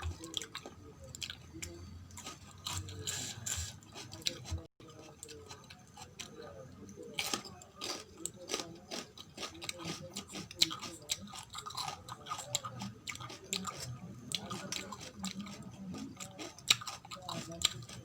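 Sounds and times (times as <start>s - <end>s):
chewing food: 0.0s - 18.0s
mouth clicks and crunches: 7.2s - 18.0s.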